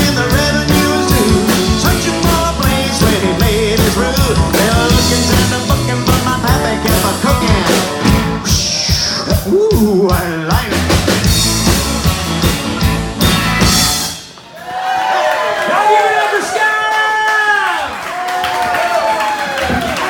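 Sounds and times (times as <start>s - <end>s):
bass line: 0.0s - 14.3s
drum kit beat: 0.0s - 14.4s
country band playing: 0.0s - 14.5s.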